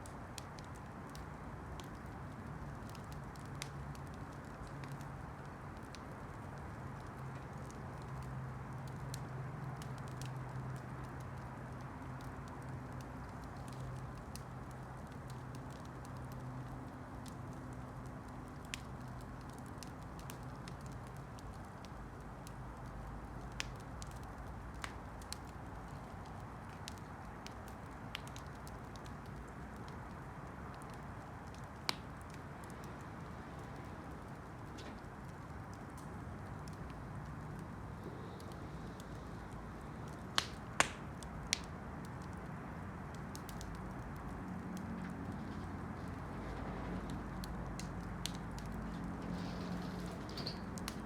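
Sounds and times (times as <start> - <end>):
campfire crackling: 0.0 - 51.0
sharp fire pops: 33.6 - 42.4.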